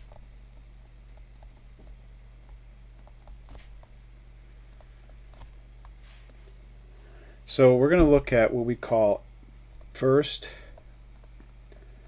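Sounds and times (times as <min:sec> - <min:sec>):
faint clicks and taps: 0:00.0 - 0:04.0, 0:04.7 - 0:06.4, 0:10.7 - 0:11.9
low electrical hum: 0:00.0 - 0:12.0.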